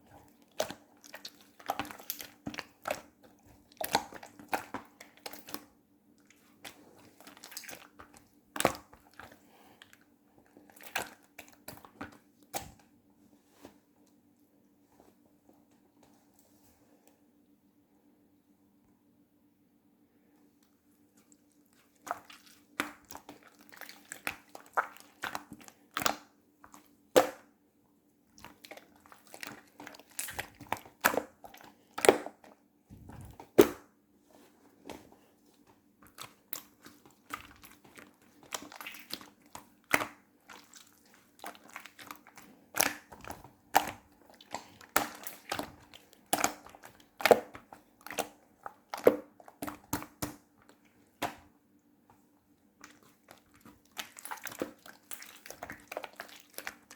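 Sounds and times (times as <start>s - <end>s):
slime squished by hand: 0.3s - 10.0s, 21.4s - 27.5s, 28.3s - 33.9s, 36.0s - 51.5s, 52.7s - 56.9s.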